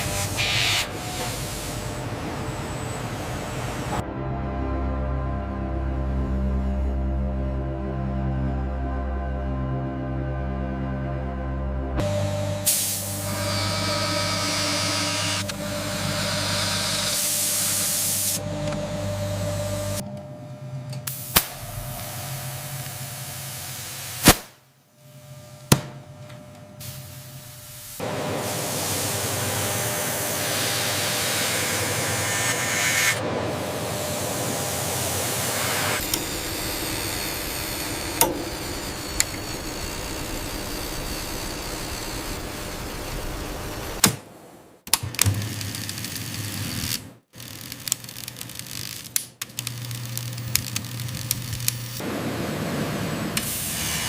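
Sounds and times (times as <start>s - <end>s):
hissing machine noise: 0.0s - 4.0s, 12.0s - 20.2s, 20.9s - 44.1s, 49.6s - 54.0s
low hum: 1.1s - 44.6s.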